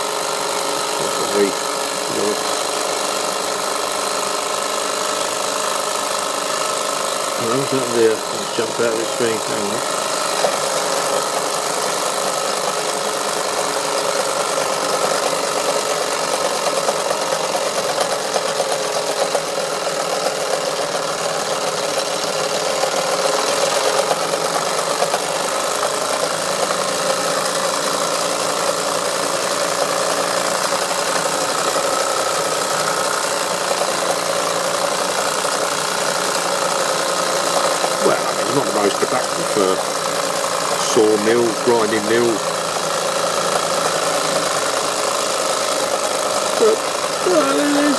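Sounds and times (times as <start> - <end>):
steady mechanical whine: 0.0 - 47.9
toy steam engine running: 0.0 - 47.9.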